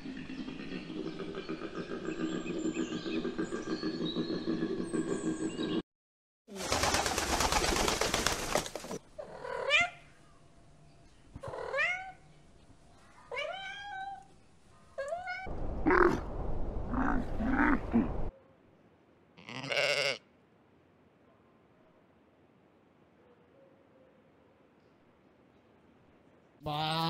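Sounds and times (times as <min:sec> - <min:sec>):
pigeons wings flapping: 0:06.5 - 0:09.0
sheep bleat: 0:19.4 - 0:20.3.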